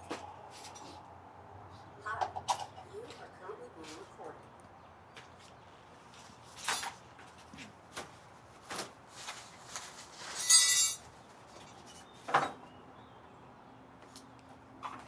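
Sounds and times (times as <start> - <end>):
clicks and knocks of tools and parts: 9.8 - 12.6
parts rattling: 10.2 - 11.0.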